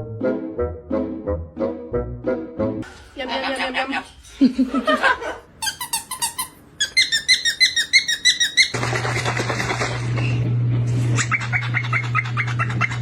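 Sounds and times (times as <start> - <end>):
parrot chirping: 5.6 - 8.8, 11.2 - 13.0
steady low hum: 9.6 - 13.0.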